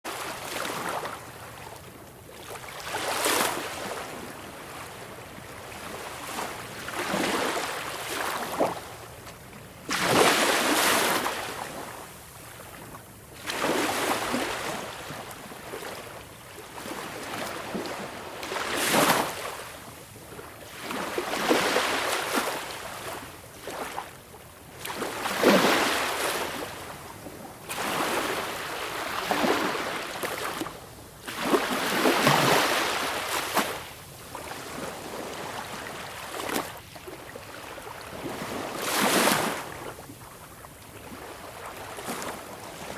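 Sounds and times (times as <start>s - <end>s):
sea waves breaking on beach: 2.4s - 8.9s, 9.9s - 12.0s, 13.4s - 19.8s, 20.7s - 24.1s, 24.7s - 27.0s, 27.6s - 40.4s.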